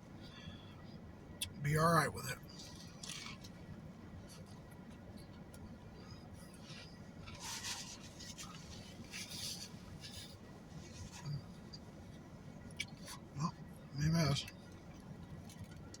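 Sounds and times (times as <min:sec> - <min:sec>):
short scratchy rustles: 0:07.3 - 0:11.4.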